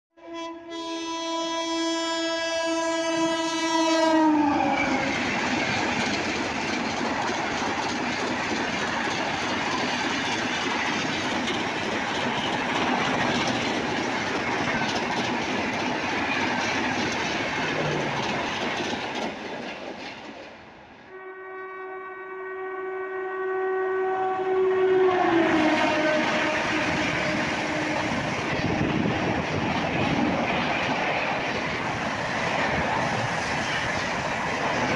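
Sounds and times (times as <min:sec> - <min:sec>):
train horn blast: 0:00.2 - 0:05.2, 0:21.1 - 0:28.8
train wheels rushing on rails: 0:03.5 - 0:21.1, 0:24.4 - 0:34.9.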